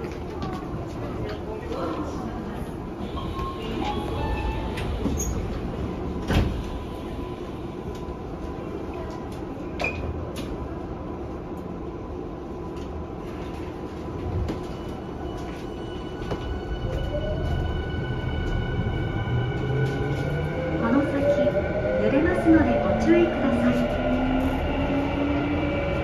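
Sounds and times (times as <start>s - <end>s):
train steady hum: 0.0s - 26.0s
train doors sliding shut: 3.2s - 7.0s.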